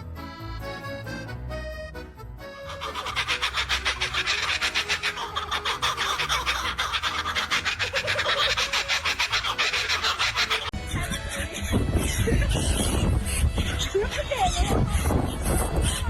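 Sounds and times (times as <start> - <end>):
fast rasping strokes: 2.6 - 10.8.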